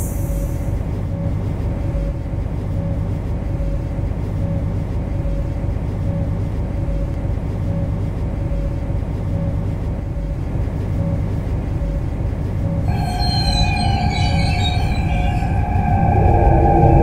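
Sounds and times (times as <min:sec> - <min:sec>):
train electric hum: 0:00.0 - 0:17.0
higher tone: 0:12.8 - 0:17.0.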